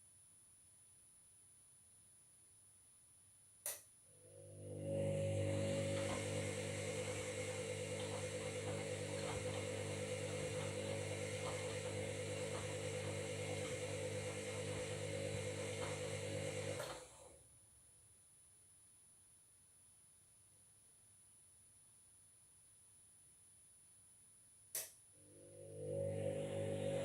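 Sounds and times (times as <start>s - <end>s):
washing machine motor hum: 4.1s - 17.4s, 25.2s - 27.0s.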